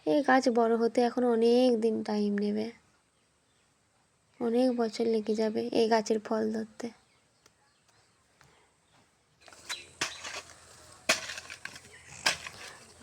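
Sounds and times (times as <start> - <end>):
sharp knocks and scuffs: 8.9 - 13.0
soil being pressed down: 9.4 - 13.0.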